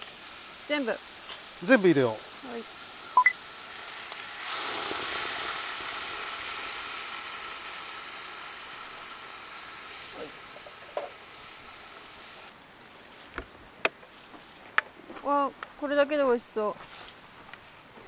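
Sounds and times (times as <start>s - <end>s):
tomatoes sizzling in hot oil: 0.0s - 12.5s.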